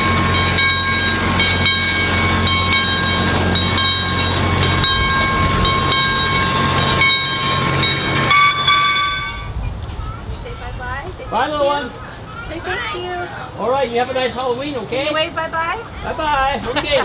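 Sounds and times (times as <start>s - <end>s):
rail joint clicks: 0.0s - 10.0s
wheels squealing on rails: 0.0s - 10.6s
ride train low hum: 0.0s - 13.1s.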